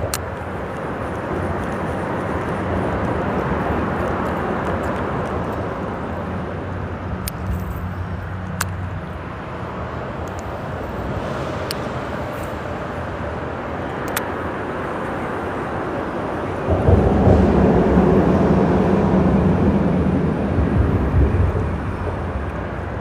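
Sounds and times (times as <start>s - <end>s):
freeway traffic noise: 0.0s - 23.0s
low vehicle drone: 0.0s - 23.0s
sharp clicks: 13.9s - 14.3s.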